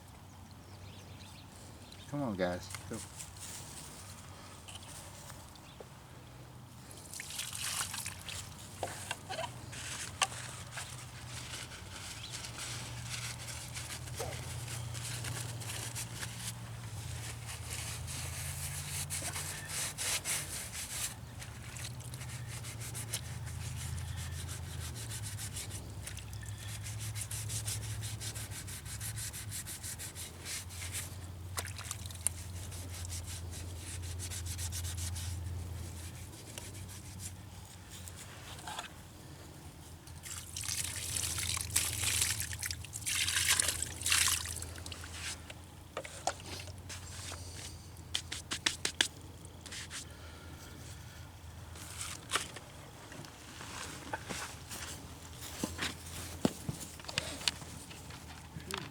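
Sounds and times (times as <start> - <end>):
rubbing strokes on a hard surface: 8.8 - 31.2, 32.2 - 38.9.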